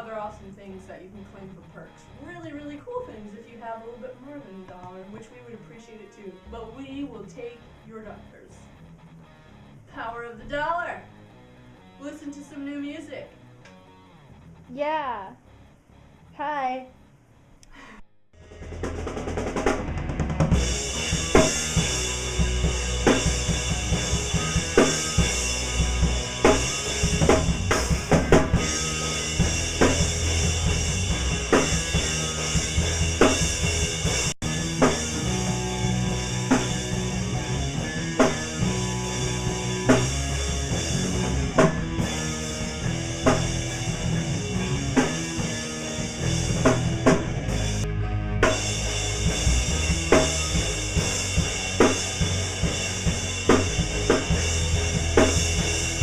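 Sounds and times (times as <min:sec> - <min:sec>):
rock music: 0:00.0 - 0:17.5, 0:18.4 - 0:56.0
drum kit beat: 0:18.4 - 0:56.0.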